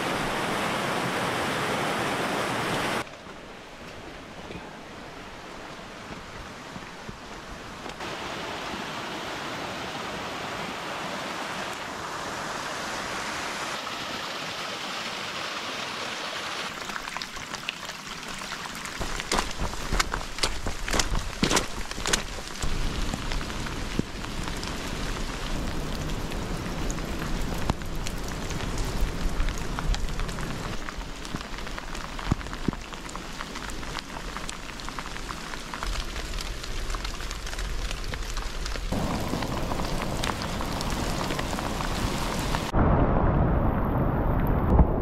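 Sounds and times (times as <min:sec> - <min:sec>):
steady rain falling: 0:00.0 - 0:45.0.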